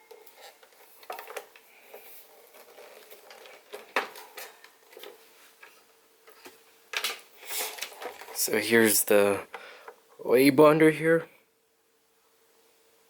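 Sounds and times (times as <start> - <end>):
table fan handling clicks and knocks: 3.0 - 8.4.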